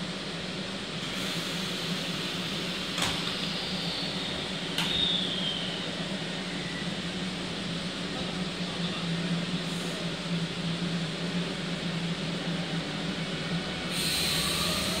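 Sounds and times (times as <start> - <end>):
electric train humming: 0.0 - 15.0
faint falling squeal: 3.2 - 7.0.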